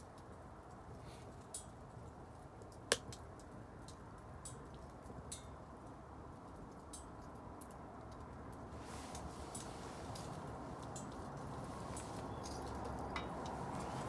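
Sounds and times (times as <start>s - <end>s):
low steady hiss: 0.0s - 14.0s
bonfire crackling and popping: 1.8s - 5.4s.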